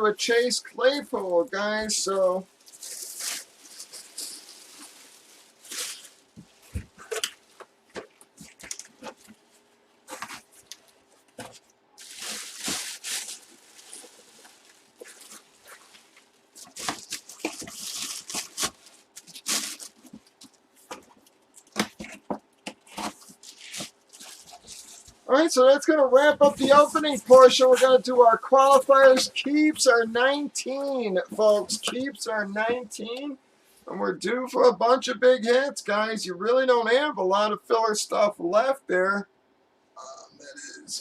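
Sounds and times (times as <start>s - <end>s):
faint steady hum: 0.0s - 41.0s
plastic and cardboard rustling: 0.2s - 33.4s.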